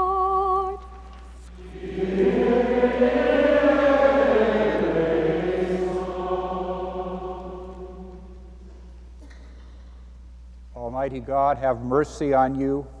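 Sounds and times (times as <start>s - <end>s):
congregation chanting in unison: 1.5s - 8.9s.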